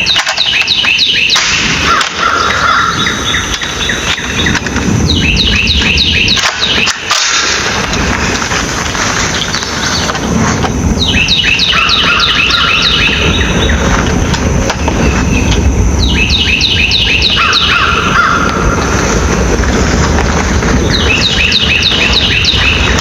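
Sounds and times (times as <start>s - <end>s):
steady low rumble: 0.0s - 23.0s
songbird singing quick notes: 2.9s - 7.1s, 11.0s - 13.9s, 14.8s - 18.0s, 20.9s - 23.0s.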